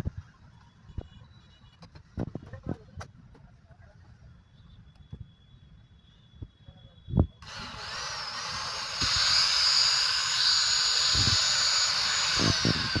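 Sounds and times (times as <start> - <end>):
cutter motor whine: 7.2 - 13.0.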